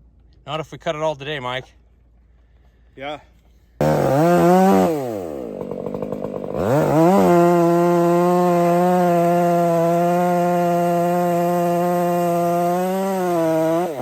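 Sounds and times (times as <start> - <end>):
chainsaw engine revving: 3.8 - 14.0.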